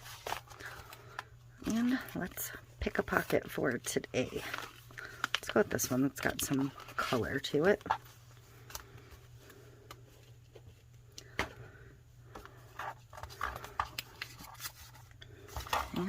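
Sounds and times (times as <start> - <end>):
paper rustling: 0.0 - 2.1, 12.4 - 16.0
low steady hum: 0.0 - 16.0.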